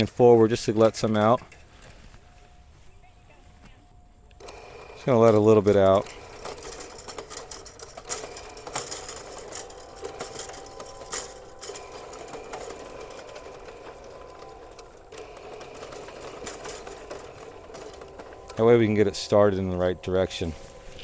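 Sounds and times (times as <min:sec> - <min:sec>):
drain snake motor humming: 0:04.4 - 0:21.0.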